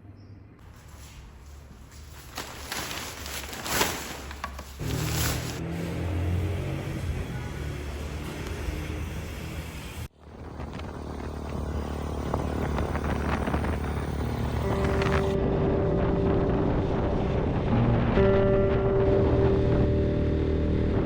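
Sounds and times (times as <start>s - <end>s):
motorcycle engine hum: 0.6s - 21.0s.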